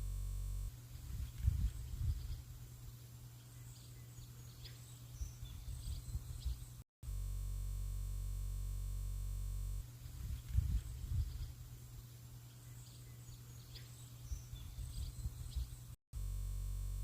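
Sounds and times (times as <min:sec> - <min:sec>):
steady low hum: 0:00.0 - 0:17.0
faint bird chirps: 0:00.8 - 0:06.8, 0:09.8 - 0:16.0.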